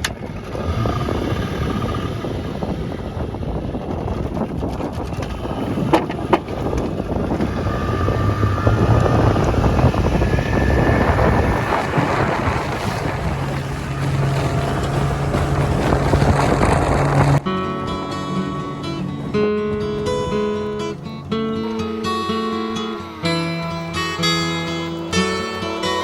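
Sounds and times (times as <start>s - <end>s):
wind buffeting microphone: 0.0s - 21.3s
outboard motor running: 0.0s - 26.0s.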